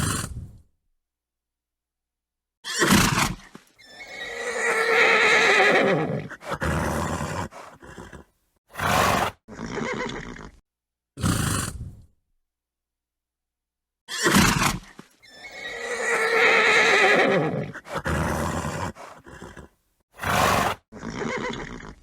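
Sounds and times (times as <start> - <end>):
horse neighing: 2.6 - 10.6, 14.1 - 22.0
horse snorting: 2.8 - 10.6, 11.2 - 12.1, 14.1 - 22.0.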